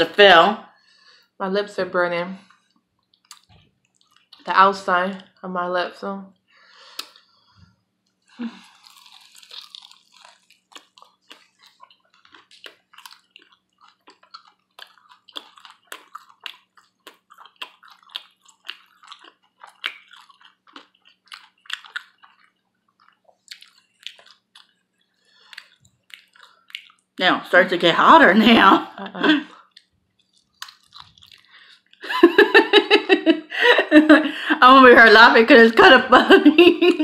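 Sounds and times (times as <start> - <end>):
faint steady hum: 0.0 - 37.0
person chewing with lip smacks: 3.0 - 4.5, 6.9 - 7.3, 8.6 - 27.2, 29.5 - 32.0.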